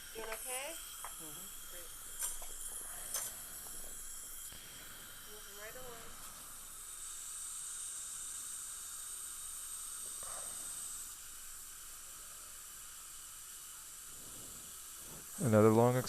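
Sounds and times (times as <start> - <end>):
dental equipment hissing: 0.0 - 16.0
higher louder hiss: 0.0 - 16.0.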